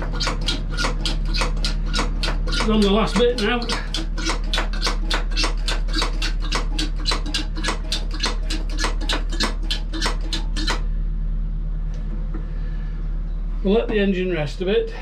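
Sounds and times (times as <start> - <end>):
hand pump strokes: 0.0 - 10.8
steady low hum: 0.0 - 15.0.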